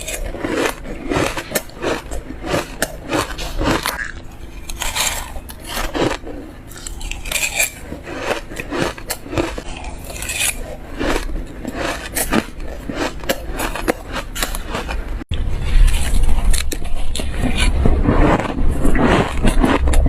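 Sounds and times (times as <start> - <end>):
spoon crunching shaved ice: 0.0 - 15.2.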